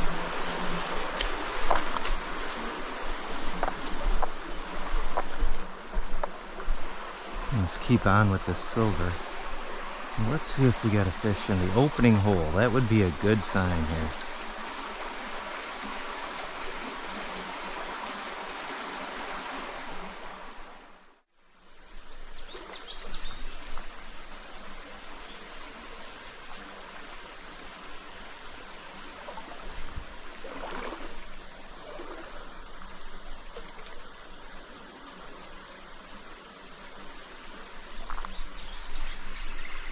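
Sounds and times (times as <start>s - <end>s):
stream water running: 0.0s - 39.9s
short water splashes: 29.0s - 32.6s.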